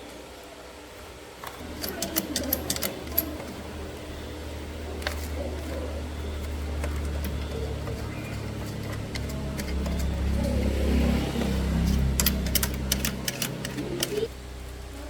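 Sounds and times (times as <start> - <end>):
sharp clicks: 1.6 - 3.4, 11.9 - 14.3
small motorcycle engine: 1.6 - 14.3.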